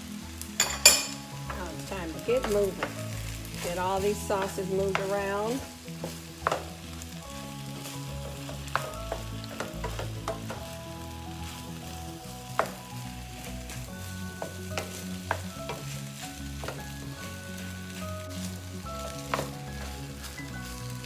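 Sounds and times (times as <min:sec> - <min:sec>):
fried rice sizzling in wok: 0:00.0 - 0:21.0
spatula knocking and scraping wok: 0:00.4 - 0:21.0.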